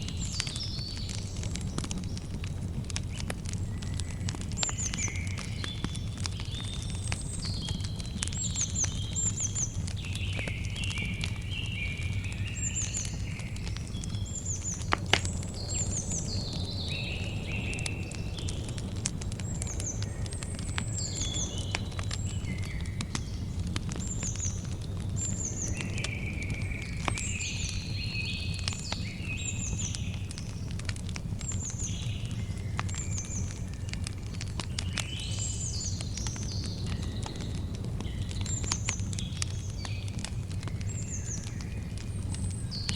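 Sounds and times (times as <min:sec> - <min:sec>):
campfire crackling and popping: 0:00.0 - 0:42.9.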